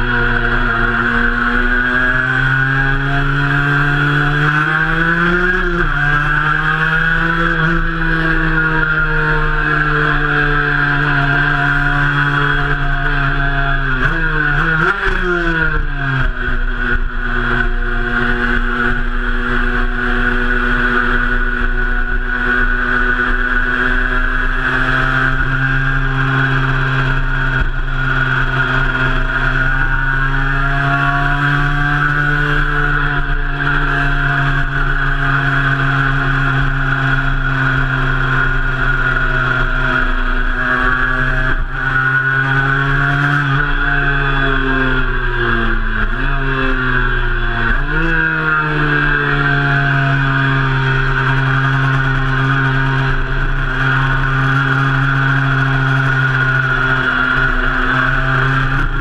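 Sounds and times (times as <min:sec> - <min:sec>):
two-stroke motorcycle engine: 0:00.0 - 0:59.0.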